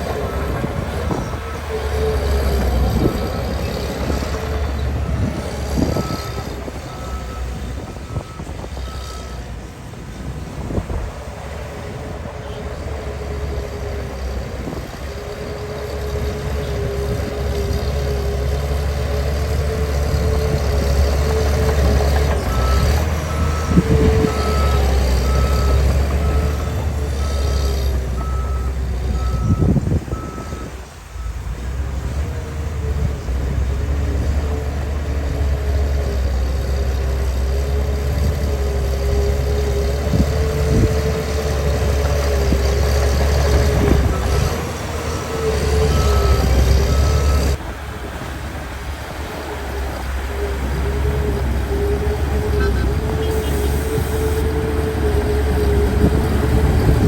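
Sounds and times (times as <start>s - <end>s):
heavy diesel engine rumbling: 0.0s - 57.0s
reversing alarm beeping: 22.6s - 31.4s, 44.0s - 47.6s.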